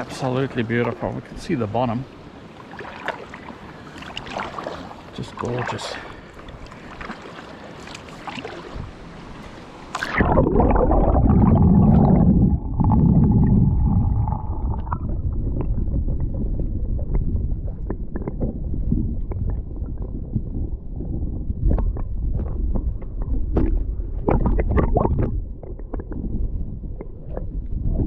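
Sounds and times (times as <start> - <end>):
water splashing around kayak: 0.0 - 28.0
paddle clicks: 2.7 - 8.6
muffled underwater rumble and gurgling: 8.1 - 28.0.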